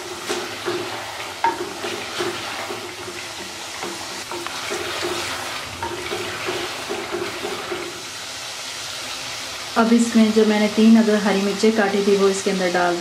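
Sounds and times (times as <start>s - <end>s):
chicken sizzling in clay pot: 0.0s - 13.0s.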